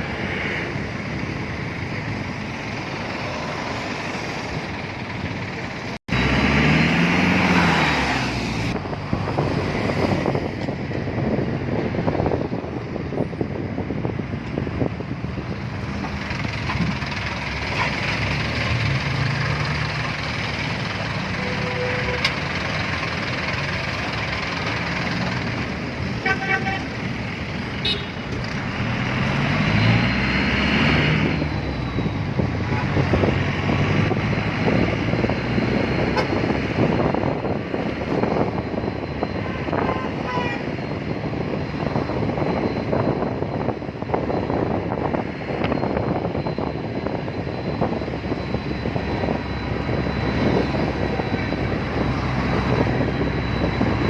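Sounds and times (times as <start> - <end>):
traffic engines and tyre noise: 0.0 - 54.0
engine revving: 6.0 - 10.5, 16.8 - 25.7, 27.9 - 40.7
car horns tooting: 21.2 - 22.4, 26.2 - 27.0, 27.8 - 28.2, 39.4 - 40.8.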